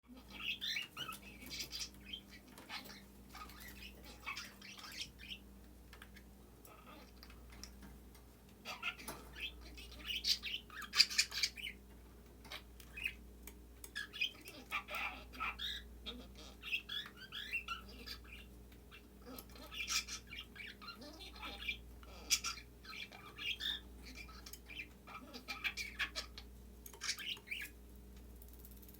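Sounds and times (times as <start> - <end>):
budgie chattering and warbling: 0.1 - 5.4, 8.6 - 11.8, 13.8 - 27.7.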